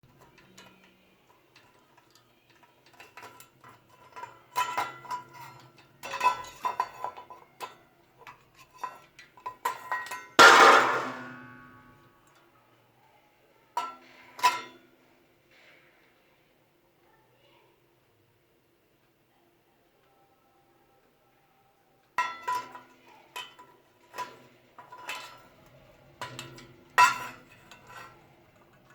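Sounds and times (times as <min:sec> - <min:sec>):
loud ringing metal clang: 0:10.4 - 0:11.8.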